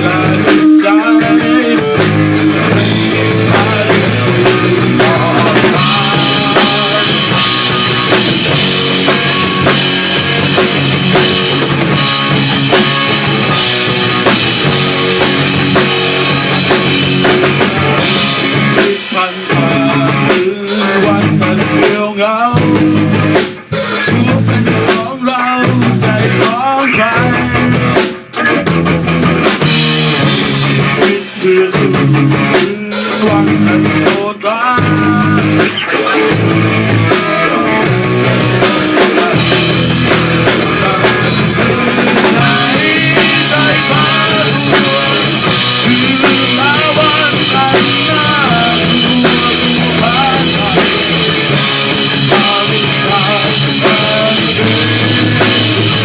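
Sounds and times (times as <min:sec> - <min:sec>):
rock band playing: 0:00.0 - 0:56.0.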